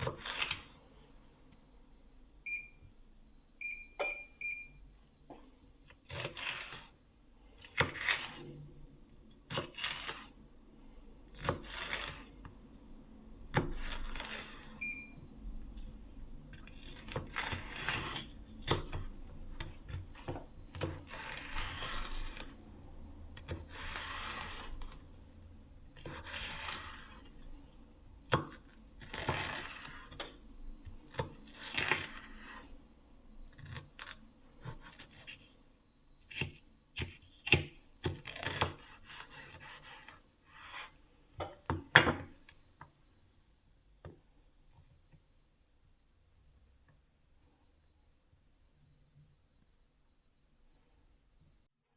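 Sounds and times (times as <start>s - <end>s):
short electronic beep: 2.5s - 4.8s, 14.8s - 15.2s.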